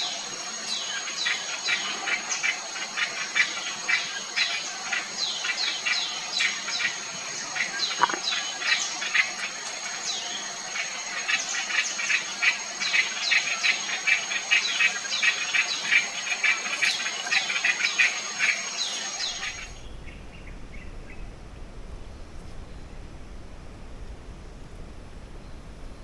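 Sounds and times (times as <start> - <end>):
high insect whine: 0.0 - 26.0
forest birds calling: 18.8 - 26.0
low rumbling noise: 19.3 - 26.0.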